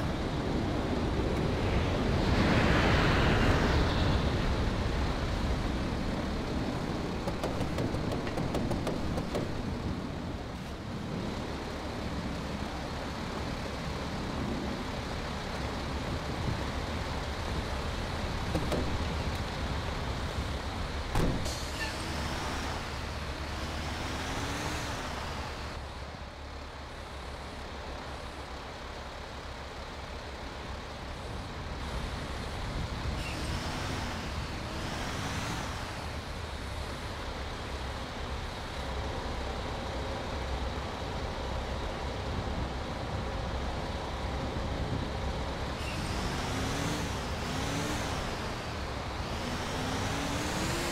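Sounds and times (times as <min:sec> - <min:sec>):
sharp knock: 0:07.2 - 0:09.6
truck engine revving: 0:45.9 - 0:50.9.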